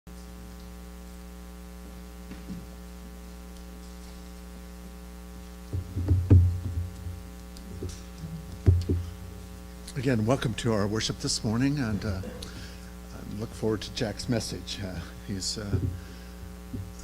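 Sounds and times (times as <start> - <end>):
electrical mains hum: 0.1 - 17.0
low thumps: 5.7 - 9.5, 15.6 - 17.0.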